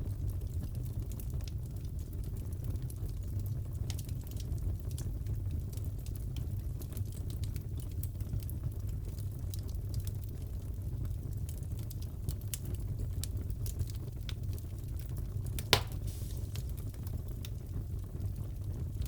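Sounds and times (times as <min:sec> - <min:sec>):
low fire rumble: 0:00.0 - 0:19.0
wood fire crackling: 0:00.0 - 0:19.0
fire pop: 0:15.6 - 0:17.5.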